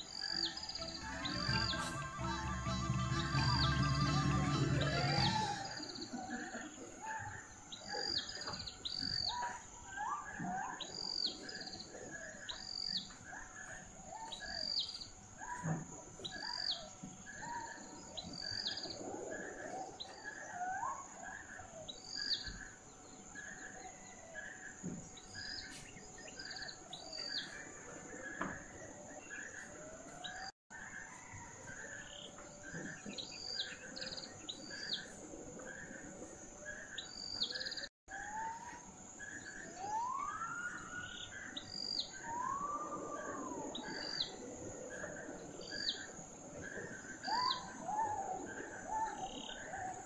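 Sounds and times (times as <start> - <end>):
birds chirping: 0.0 - 6.6
steady high whine: 0.8 - 5.9.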